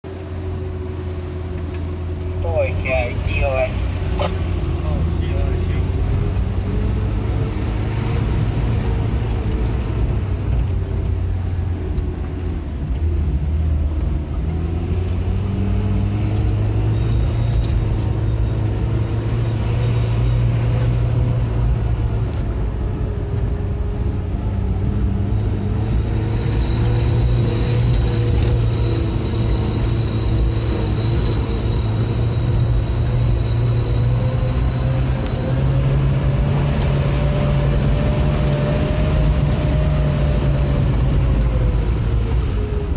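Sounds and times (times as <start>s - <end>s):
vehicle engine rumbling: 0.0s - 42.9s.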